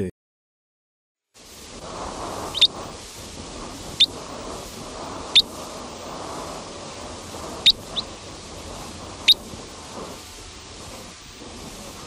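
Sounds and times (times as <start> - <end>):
forest ambience hiss: 1.4 - 12.0
small bird chirping: 2.4 - 2.9, 3.9 - 4.2, 5.3 - 5.6, 7.6 - 8.2, 9.2 - 9.5.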